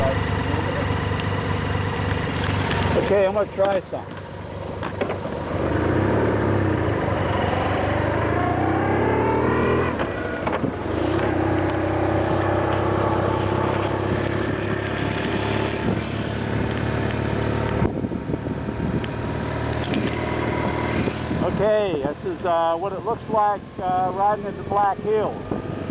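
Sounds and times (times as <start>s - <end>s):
motorcycle engine accelerating: 0.0s - 25.9s.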